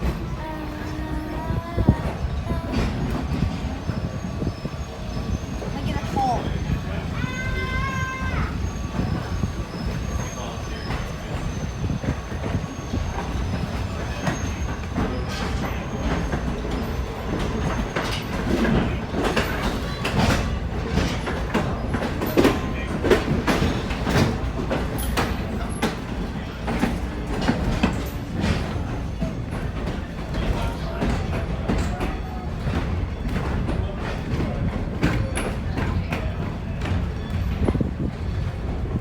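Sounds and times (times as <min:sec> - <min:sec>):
railroad cars rumbling: 0:00.0 - 0:39.0
wheels clicking over rail joints: 0:09.0 - 0:39.0.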